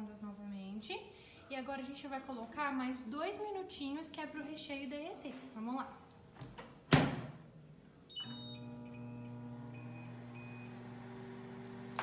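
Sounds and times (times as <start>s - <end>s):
microwave oven humming: 8.2s - 12.0s.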